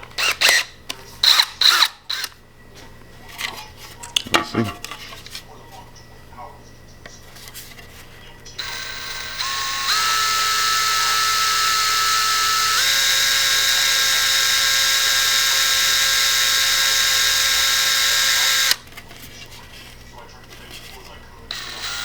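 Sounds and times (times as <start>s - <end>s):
electric drill whining: 0.1s - 2.4s, 8.6s - 18.8s, 21.5s - 22.0s.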